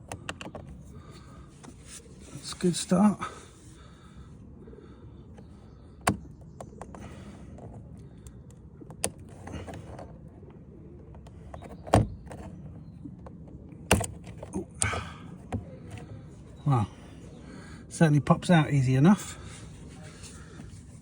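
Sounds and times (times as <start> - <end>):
rustling and scraping: 0.2 - 3.8, 9.1 - 14.6, 19.4 - 21.0
sharp plastic clicks and knocks: 6.0 - 7.0.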